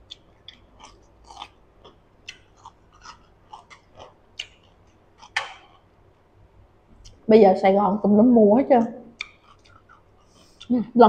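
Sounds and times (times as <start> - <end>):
crunchy chewing: 0.0 - 5.9, 9.2 - 10.7.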